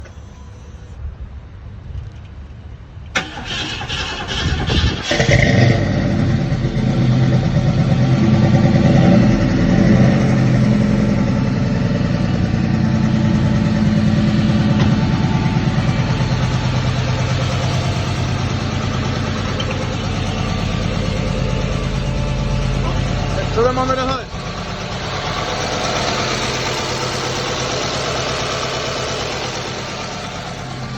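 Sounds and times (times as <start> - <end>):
car engine idling: 3.2 - 30.9
starter motor clicking and cranking: 12.9 - 30.9.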